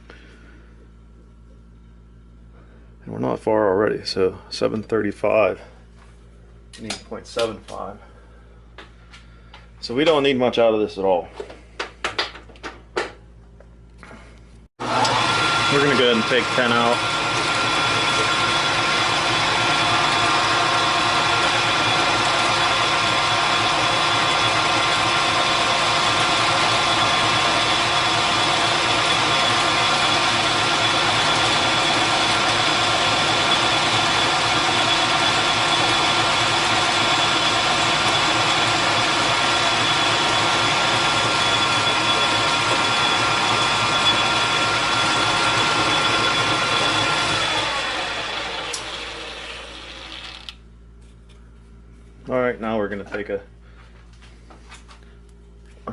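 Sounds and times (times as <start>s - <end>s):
machine tool motor whining: 14.8s - 50.6s.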